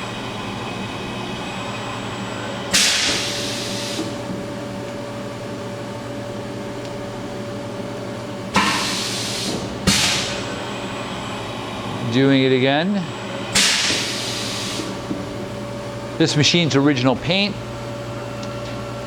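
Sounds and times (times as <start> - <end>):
machine hum: 0.0 - 19.0
loud pneumatic hiss: 2.7 - 4.2, 8.6 - 10.6, 13.5 - 15.0.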